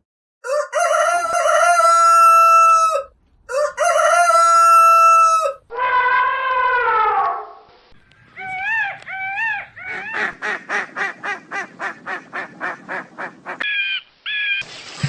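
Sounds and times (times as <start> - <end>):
higher-pitched animal call: 4.6 - 7.7, 8.3 - 10.4, 13.6 - 14.6
duck quacking: 8.4 - 14.6.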